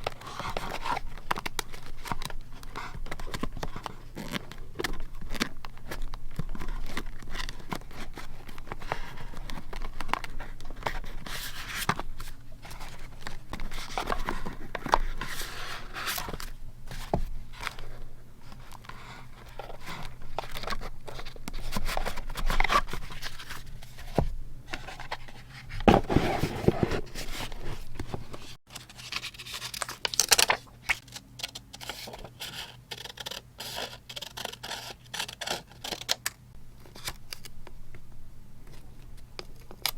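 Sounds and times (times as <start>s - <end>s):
paper rustling and tearing: 18.6s - 31.1s.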